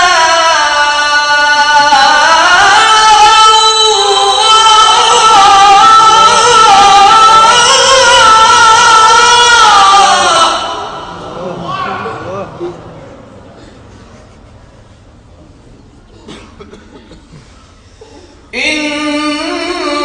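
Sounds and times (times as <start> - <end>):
man reciting melismatic chant: 0.0 - 13.3, 18.5 - 20.0.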